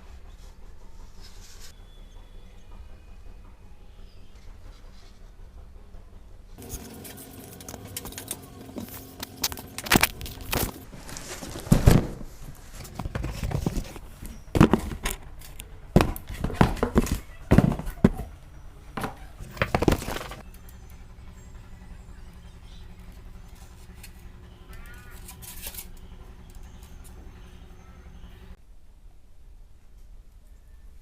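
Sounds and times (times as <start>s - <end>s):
hands handling tools and materials: 6.6s - 20.5s.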